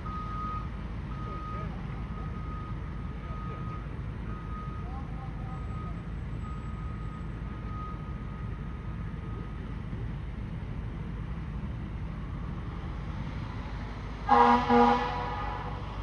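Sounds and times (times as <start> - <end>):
vehicle engines rumbling: 0.0 - 16.0.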